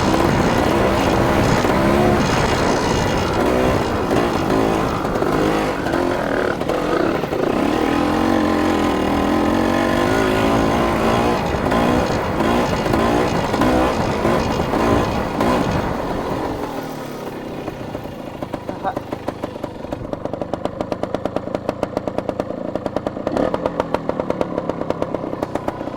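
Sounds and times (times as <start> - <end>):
dirt bike engine revving: 0.0 - 20.4.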